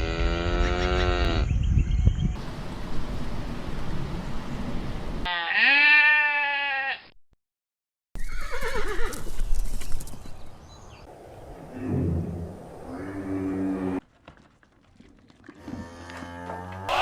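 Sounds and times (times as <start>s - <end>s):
drawn-out farm animal call: 0.0s - 1.5s, 5.2s - 7.1s, 15.4s - 17.0s
outdoor background noise: 0.0s - 7.1s, 8.2s - 17.0s.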